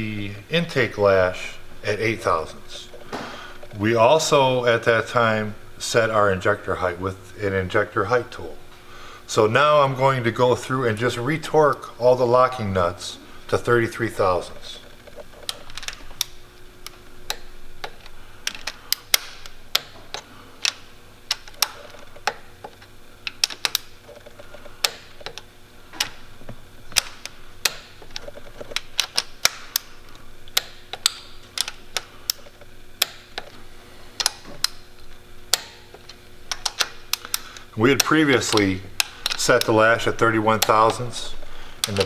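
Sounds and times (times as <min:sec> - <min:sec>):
torque wrench clicking: 0:13.5 - 0:33.6, 0:34.2 - 0:42.0.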